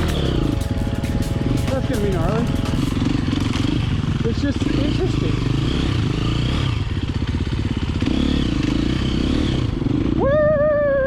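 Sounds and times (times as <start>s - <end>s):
wavering high note: 0.0s - 4.0s
dirt bike engine revving: 0.0s - 10.2s.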